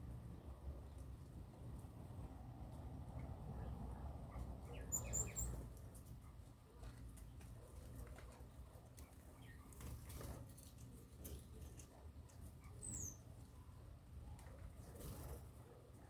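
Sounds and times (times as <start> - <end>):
small birds scratching and rustling: 0.0 - 16.0
short high bird chirps: 4.8 - 5.6.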